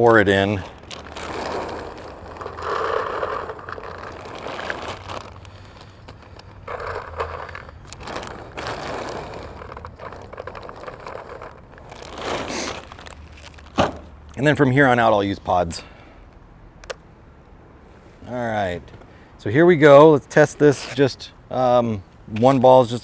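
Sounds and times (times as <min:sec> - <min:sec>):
paintballs pouring into plastic hopper: 0:00.0 - 0:14.1.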